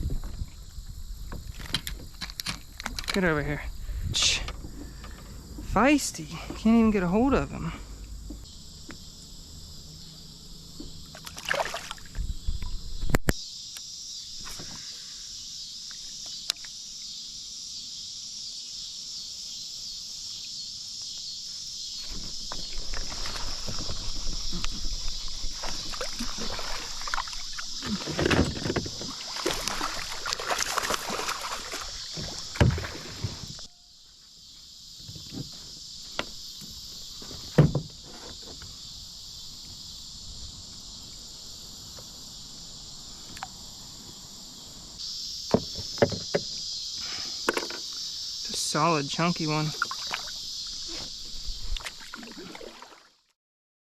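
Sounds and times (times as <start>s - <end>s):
high insect buzz: 0.0s - 53.2s
water sloshing and splashing: 10.7s - 12.7s, 22.0s - 33.7s, 49.5s - 50.8s, 51.7s - 53.3s
knocks against a kayak: 27.9s - 29.1s, 32.2s - 33.4s, 35.0s - 38.7s, 45.5s - 46.6s, 47.5s - 47.8s.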